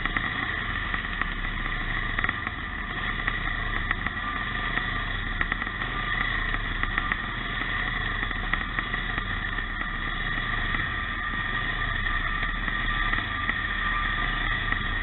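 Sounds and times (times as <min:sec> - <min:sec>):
motorcycle engines droning: 0:00.0 - 0:15.0.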